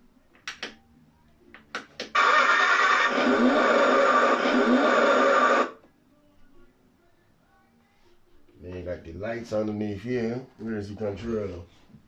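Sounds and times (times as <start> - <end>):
toy car engine sound effect: 2.2 - 5.7.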